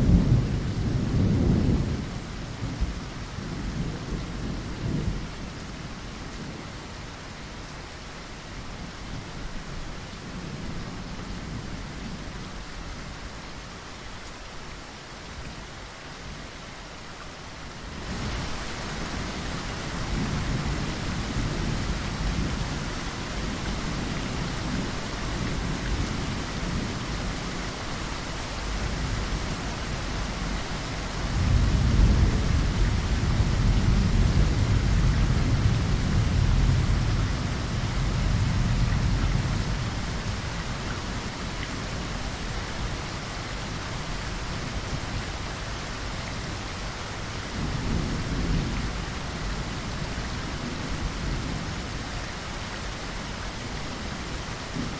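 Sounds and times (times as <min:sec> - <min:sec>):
deep thunder rumble: 0:00.0 - 0:05.3, 0:18.0 - 0:27.8, 0:28.8 - 0:40.8
steady rain: 0:00.0 - 0:54.9.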